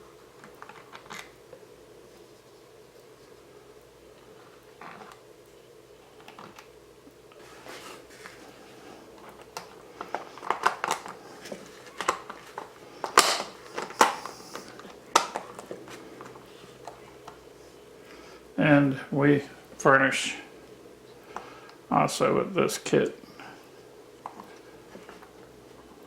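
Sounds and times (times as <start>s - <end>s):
hands handling small parts: 9.2s - 17.4s.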